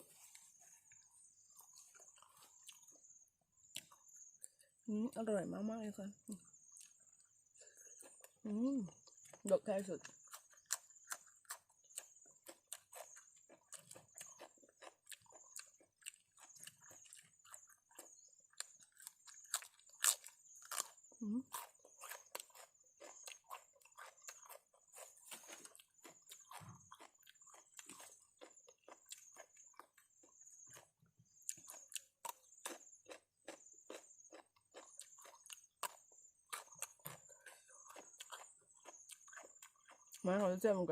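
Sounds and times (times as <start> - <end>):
person chewing crunchy salad: 0.0 - 4.8, 6.5 - 40.4.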